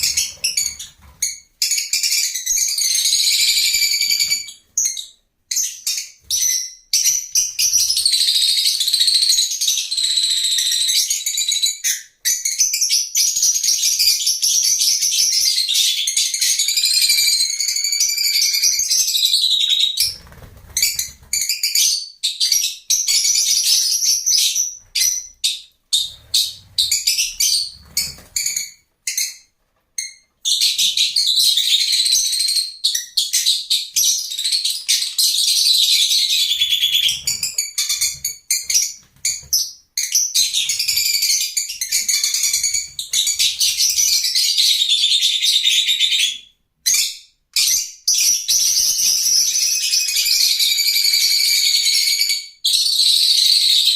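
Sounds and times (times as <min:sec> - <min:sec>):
lovebirds chirping: 0:00.0 - 0:52.0.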